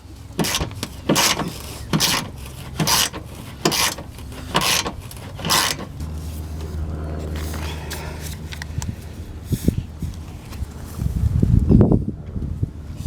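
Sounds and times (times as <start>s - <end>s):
hand ratchet rasping: 0.4s - 6.2s
low steady hum: 2.5s - 13.0s.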